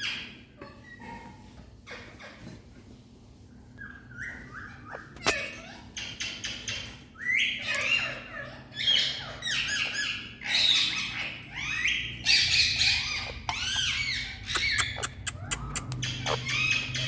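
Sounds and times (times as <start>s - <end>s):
parakeet squawking and chirping: 3.8s - 17.0s.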